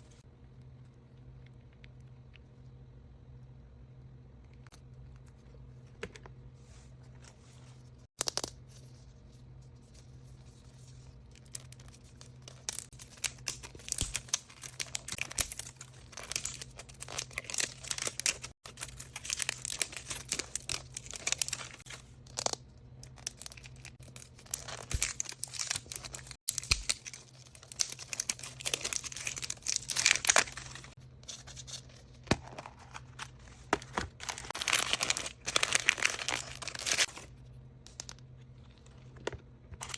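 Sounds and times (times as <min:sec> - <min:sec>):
wrapping paper tearing and rustling: 0:11.4 - 0:22.0, 0:23.2 - 0:37.3.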